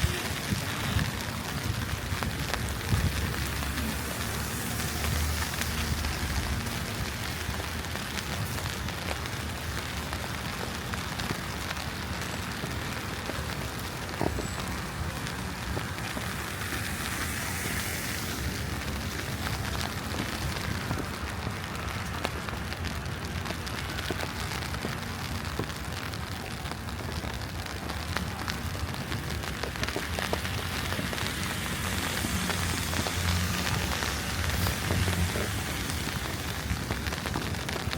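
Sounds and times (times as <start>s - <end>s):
low city rumble: 0.0s - 37.9s
wet snow hiss: 14.4s - 19.7s, 30.2s - 36.8s.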